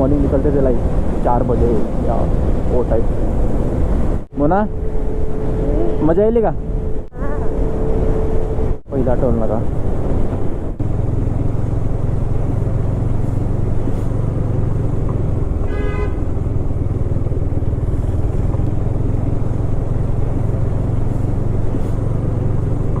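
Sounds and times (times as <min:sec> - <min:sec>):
motorcycle engine running: 0:06.6 - 0:23.0
vehicle horn honking: 0:15.6 - 0:16.5.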